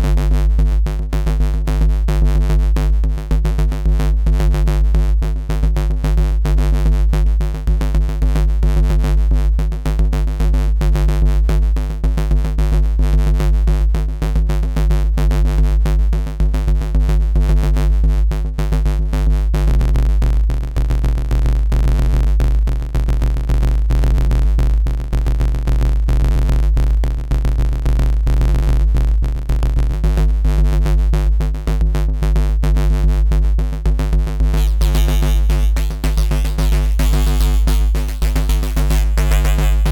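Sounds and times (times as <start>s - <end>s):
deep sub bass: 34.6s - 39.9s
drum machine beat: 34.6s - 39.9s
synth bass riff: 34.6s - 39.9s.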